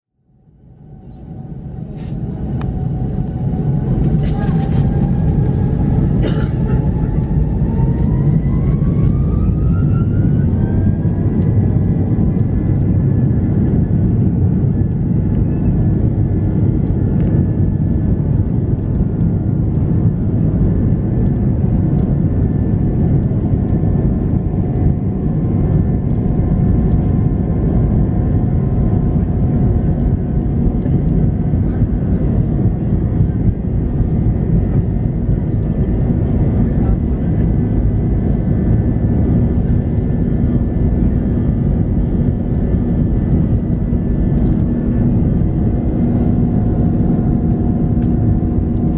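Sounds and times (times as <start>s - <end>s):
jet engines spooling up: 0.7s - 16.0s.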